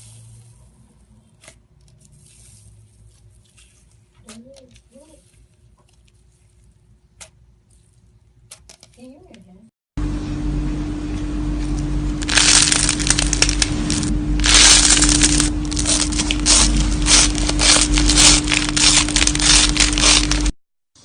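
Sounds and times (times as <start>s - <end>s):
steady low hum: 10.0s - 20.6s
slime crackling and popping: 12.2s - 20.6s.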